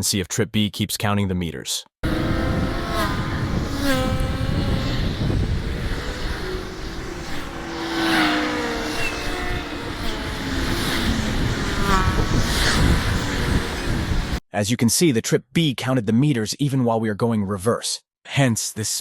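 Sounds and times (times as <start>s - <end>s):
motorcycle engine rumbling: 2.0s - 14.4s.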